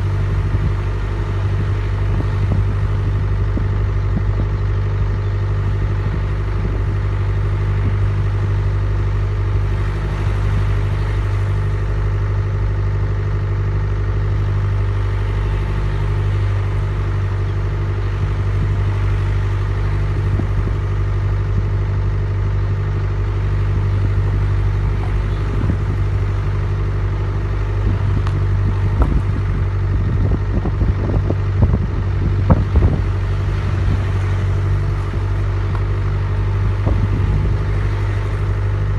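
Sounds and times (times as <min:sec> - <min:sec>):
vehicle engine humming: 0:00.0 - 0:38.9.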